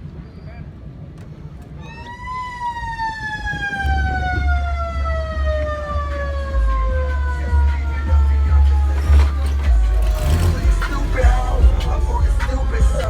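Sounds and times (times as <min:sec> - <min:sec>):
siren winding down: 0:01.8 - 0:13.0
heavy bass music: 0:02.9 - 0:13.0.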